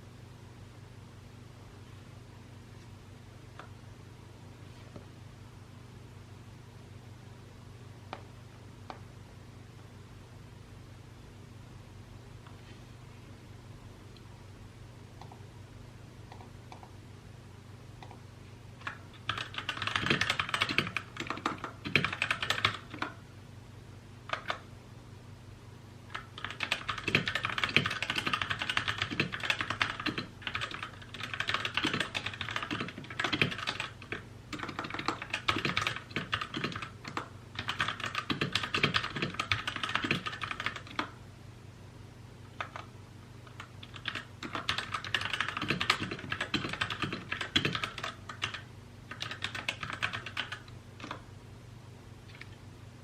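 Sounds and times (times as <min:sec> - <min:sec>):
mechanical keyboard typing: 0:18.8 - 0:23.2, 0:24.3 - 0:24.6, 0:26.1 - 0:41.1, 0:42.6 - 0:42.9, 0:43.5 - 0:51.2.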